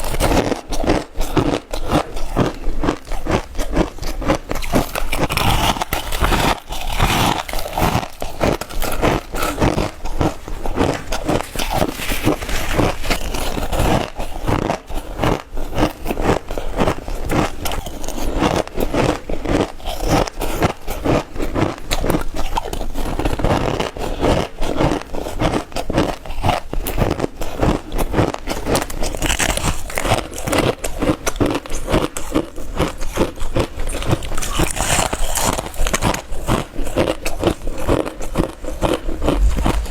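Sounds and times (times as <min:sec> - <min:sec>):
crushed ice being crunched: 0:02.4 - 0:14.8.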